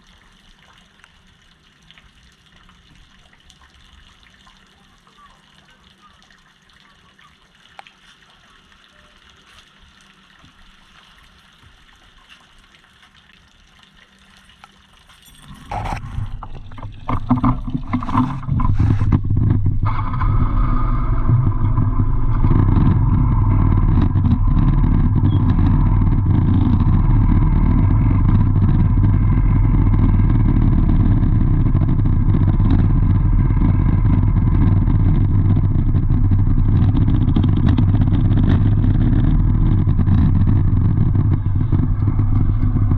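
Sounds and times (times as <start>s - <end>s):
engine clatter: 15.3s - 42.9s
vehicle engine running: 15.6s - 42.9s.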